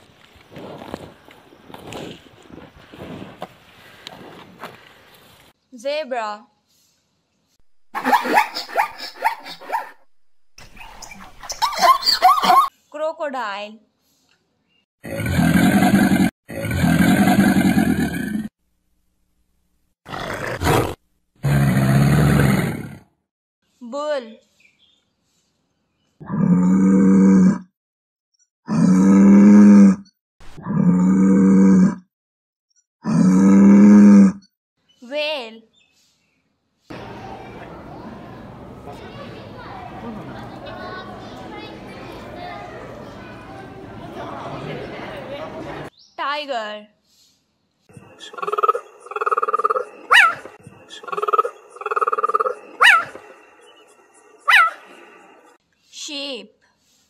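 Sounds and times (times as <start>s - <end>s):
cheetah rattling call: 48.2s - 53.3s
cheetah high chirps: 48.2s - 53.7s.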